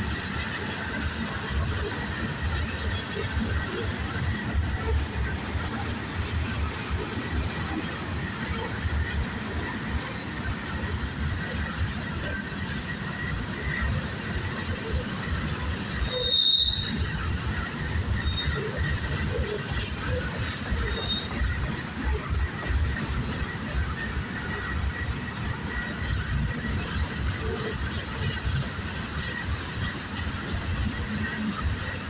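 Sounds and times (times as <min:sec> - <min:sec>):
freight train rumbling past: 0:00.0 - 0:32.0
metallic wheel squeal: 0:15.9 - 0:17.3, 0:18.0 - 0:18.9, 0:20.7 - 0:21.5.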